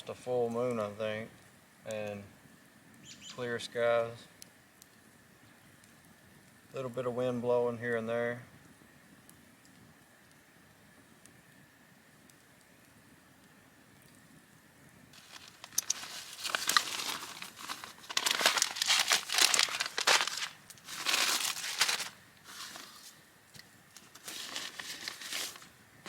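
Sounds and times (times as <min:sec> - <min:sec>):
packaging tearing: 0:15.2 - 0:23.2, 0:24.0 - 0:25.7
packaging crinkling and rustling: 0:15.2 - 0:25.8.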